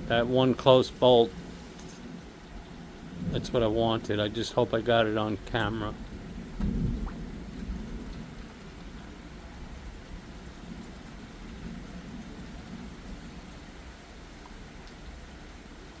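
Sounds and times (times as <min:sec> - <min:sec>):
distant thunder rumbling: 0:00.0 - 0:15.8
light rain: 0:00.0 - 0:16.0.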